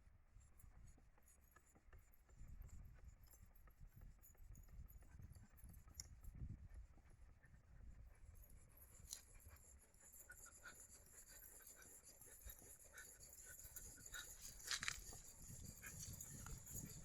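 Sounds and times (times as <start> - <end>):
wire scratching across log: 11.1 - 17.0.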